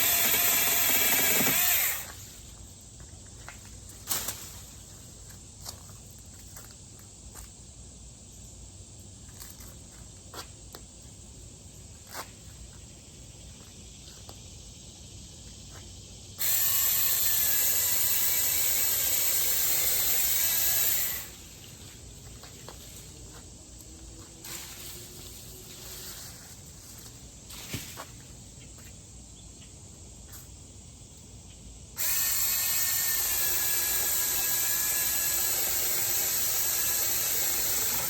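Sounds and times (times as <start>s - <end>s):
electric chainsaw whining: 0.0s - 2.4s, 16.4s - 22.0s, 32.0s - 38.0s.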